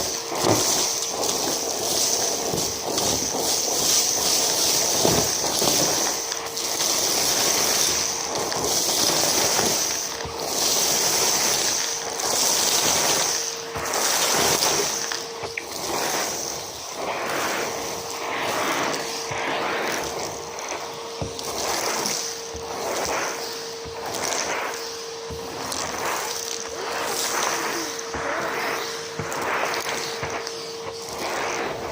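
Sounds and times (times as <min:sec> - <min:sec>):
vacuum cleaner motor whine: 0:00.0 - 0:31.9
debris crackling in vacuum: 0:23.7 - 0:31.9.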